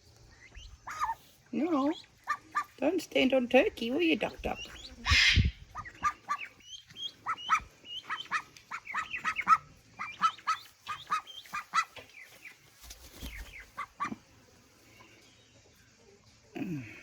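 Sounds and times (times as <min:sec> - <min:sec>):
young duck quacking rapidly: 0:00.8 - 0:01.2, 0:04.5 - 0:12.0.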